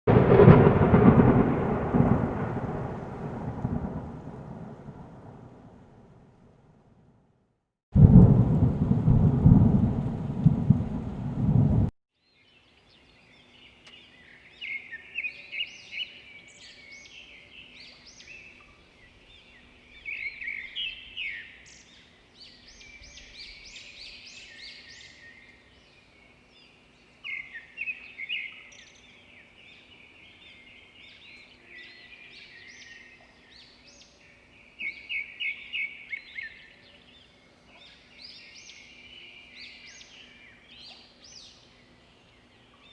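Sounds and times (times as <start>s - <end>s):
loud low rumble: 8.0s - 11.9s.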